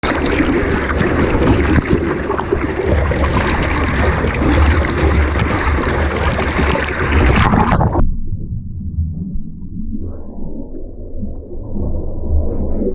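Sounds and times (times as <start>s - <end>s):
breaking surf rush: 0.0s - 8.0s
muffled underwater rumble: 0.0s - 12.9s.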